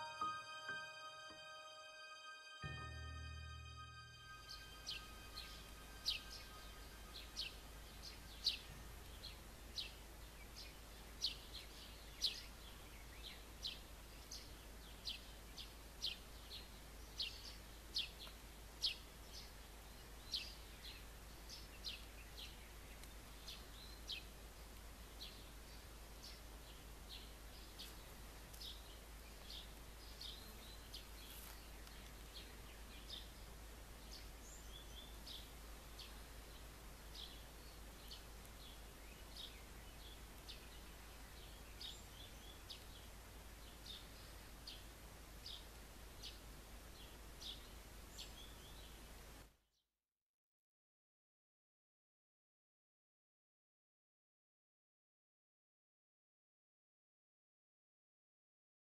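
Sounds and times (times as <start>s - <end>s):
bird chirping: 0.0s - 24.3s, 37.1s - 44.8s.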